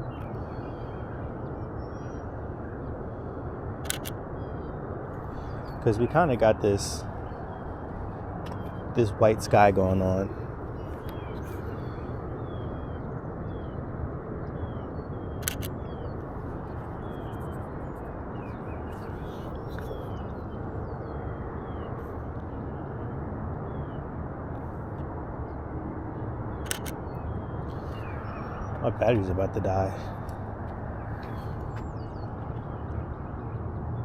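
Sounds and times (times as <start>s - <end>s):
camera shutter clicking: 3.9s - 4.2s, 15.4s - 15.7s, 26.7s - 27.0s.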